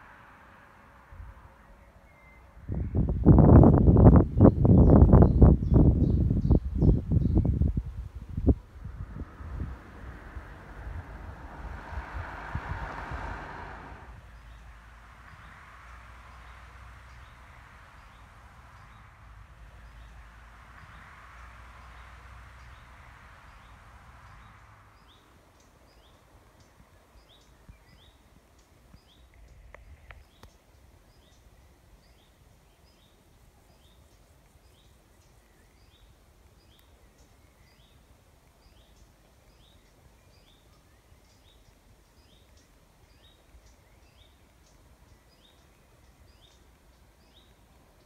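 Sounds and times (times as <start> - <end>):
low background rumble: 2.4 - 15.1.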